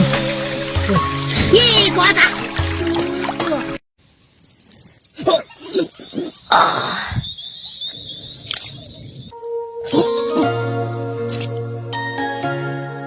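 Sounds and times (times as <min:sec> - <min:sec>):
cricket chirping: 0:04.0 - 0:09.4.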